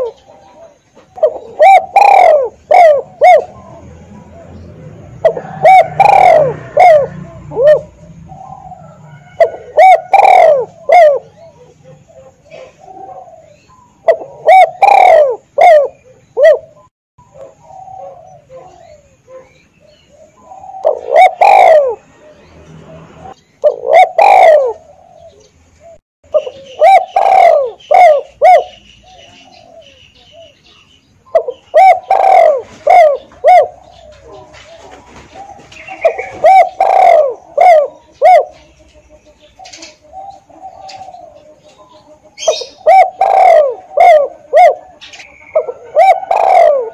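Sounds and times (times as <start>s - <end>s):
dove cooing: 0.0s - 46.9s.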